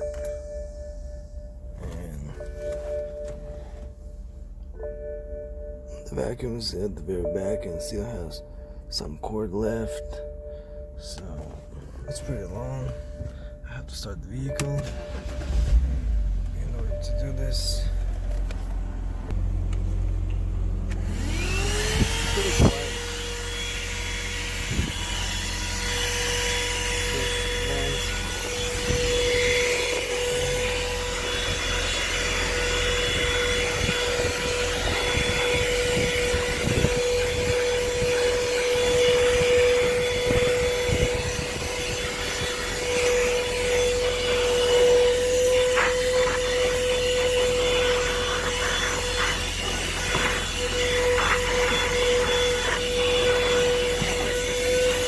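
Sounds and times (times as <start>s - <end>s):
car vacuum cleaner motor whine: 0.0s - 55.0s
air rushing through brush nozzle: 24.3s - 55.0s.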